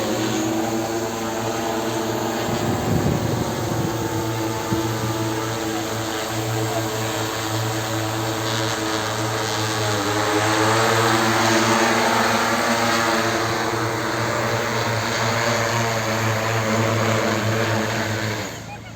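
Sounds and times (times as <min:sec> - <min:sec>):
drone propellers humming: 0:00.0 - 0:18.9.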